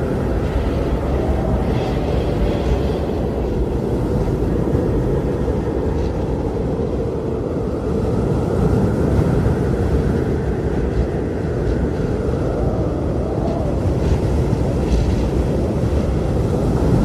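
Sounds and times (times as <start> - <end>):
blizzard wind rumbling: 0.0 - 17.0
faint high wind howl: 0.0 - 17.0.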